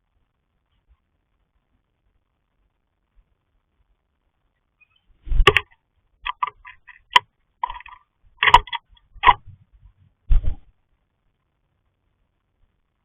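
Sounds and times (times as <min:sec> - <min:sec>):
sharp taps and knocks on camera: 0:05.3 - 0:10.6.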